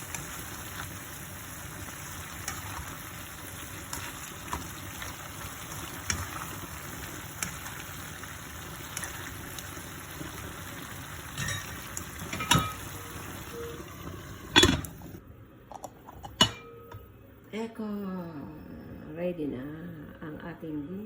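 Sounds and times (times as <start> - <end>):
food sizzling in a pan: 0.0 - 15.2.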